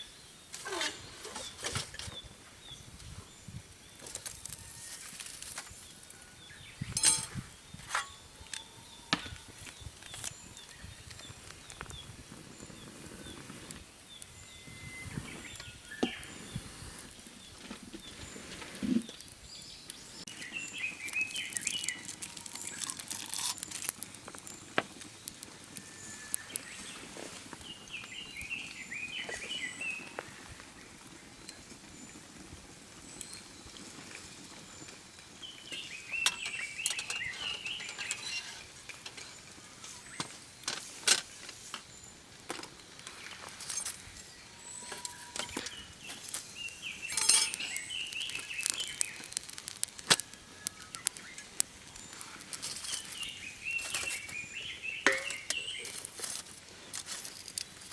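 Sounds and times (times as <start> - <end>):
campfire crackling: 0.3 - 8.6, 9.3 - 57.9
bird chirping: 34.8 - 38.6, 44.2 - 56.1.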